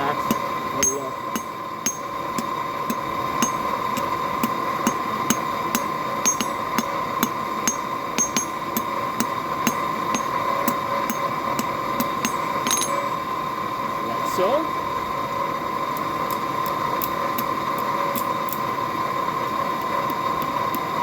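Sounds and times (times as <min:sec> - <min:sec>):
steady hum: 0:00.0 - 0:21.0
hammer striking steel on an anvil: 0:00.2 - 0:13.2.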